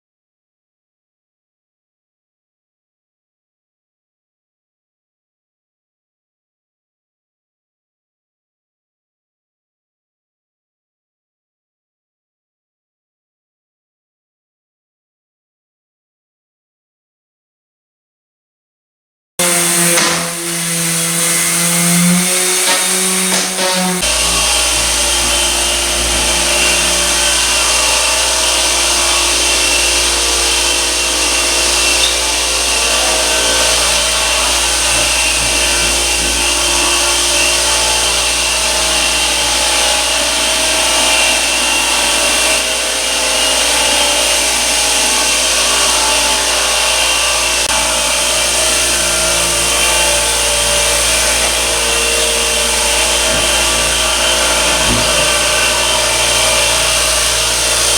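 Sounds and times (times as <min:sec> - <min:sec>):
floor sander running: 0:19.4 - 0:57.9.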